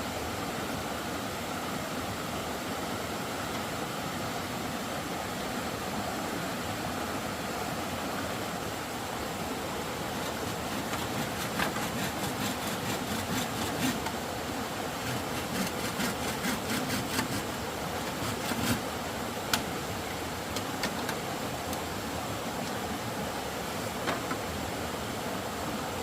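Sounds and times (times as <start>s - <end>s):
hand tool rasping wood: 10.1s - 14.2s, 14.9s - 18.9s.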